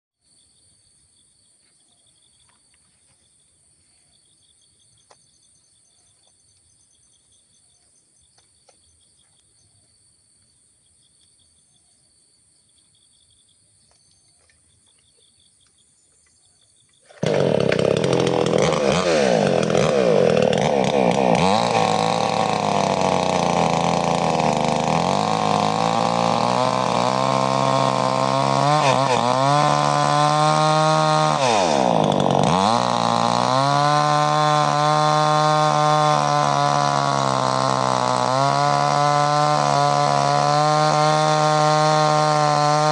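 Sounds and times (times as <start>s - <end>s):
insects chirping: 0.2s - 17.2s
chainsaw cutting wood: 17.0s - 42.9s.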